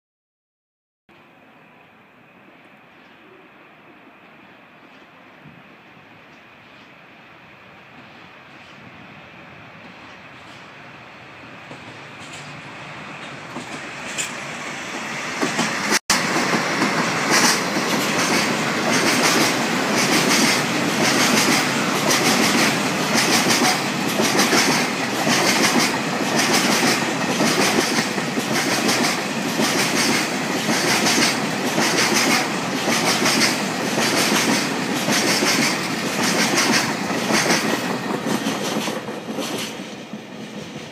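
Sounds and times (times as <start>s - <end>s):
diesel locomotives approaching: 1.2s - 40.9s
wheels clacking over rail joints: 11.6s - 40.9s.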